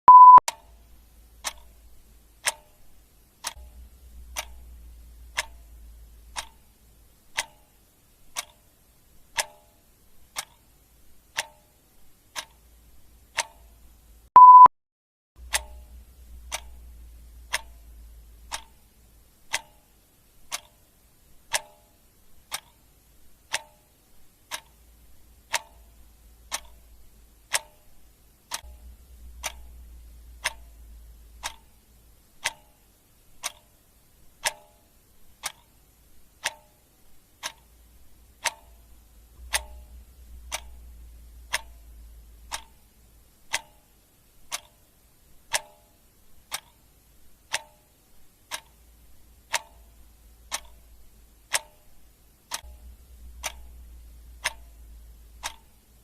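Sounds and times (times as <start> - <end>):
short electronic beep: 0.0 - 0.4, 14.4 - 14.7
clock ticking: 0.1 - 14.7, 15.4 - 56.0.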